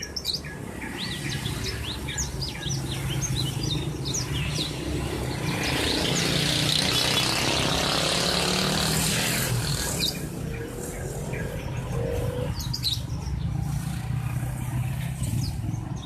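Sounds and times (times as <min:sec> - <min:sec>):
small birds chirping: 0:00.0 - 0:16.0
vehicle passing: 0:01.0 - 0:16.0.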